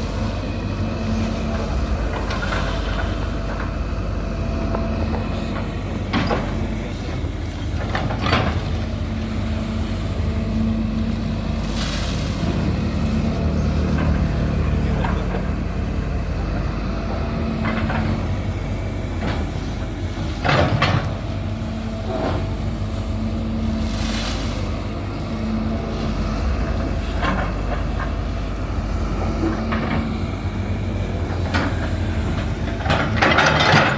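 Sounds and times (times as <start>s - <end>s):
excavator diesel engine running: 0.0s - 33.9s
machine clanking: 31.2s - 33.9s.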